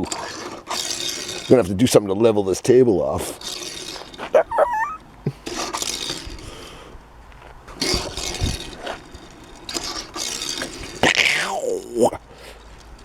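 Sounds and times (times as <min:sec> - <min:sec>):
toy car rolling on tabletop: 0:00.0 - 0:13.0.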